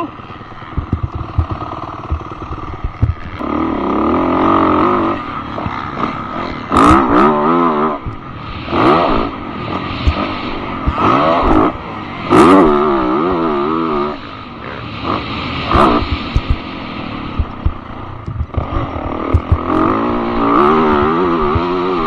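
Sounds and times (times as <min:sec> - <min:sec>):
dirt bike engine revving: 0:00.0 - 0:22.0
knocks and clatter: 0:00.6 - 0:03.4, 0:17.4 - 0:19.7.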